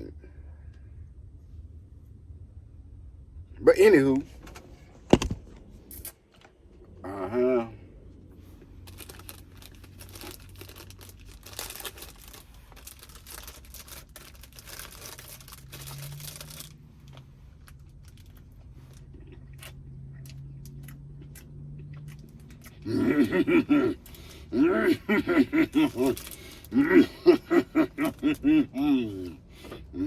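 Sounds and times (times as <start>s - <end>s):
truck engine drone: 0.0s - 30.0s
crackling and rustling: 8.6s - 19.2s.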